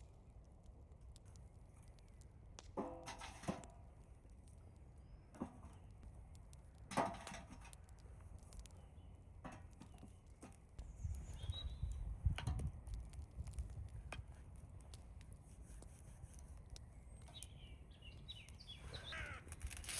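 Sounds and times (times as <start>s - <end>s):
wind rumbling on microphone: 10.2s - 19.9s.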